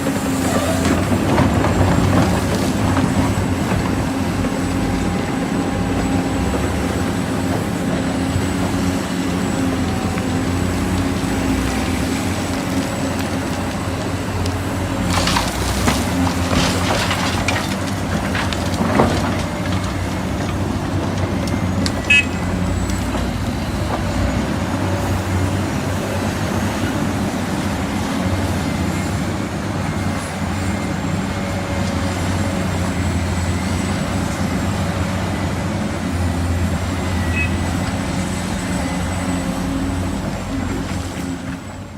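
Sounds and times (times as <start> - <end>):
diesel excavator running: 0.0 - 41.9.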